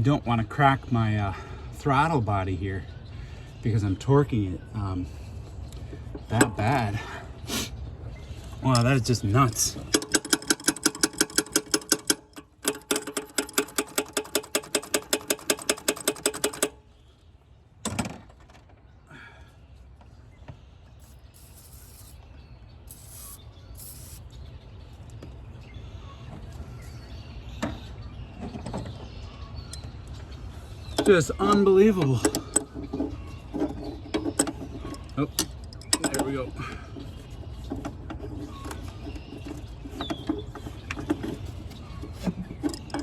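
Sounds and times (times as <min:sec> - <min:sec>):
ratchet wrench clicking rapidly: 0:09.5 - 0:16.8, 0:21.0 - 0:22.1, 0:22.9 - 0:24.2.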